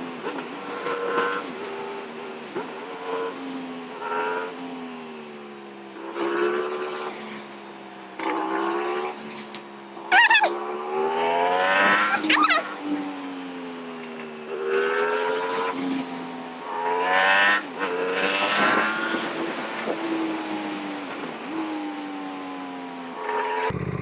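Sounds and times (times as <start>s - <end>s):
motorcycle engine revving: 0.0s - 24.0s
high wavering squeal: 12.0s - 12.7s.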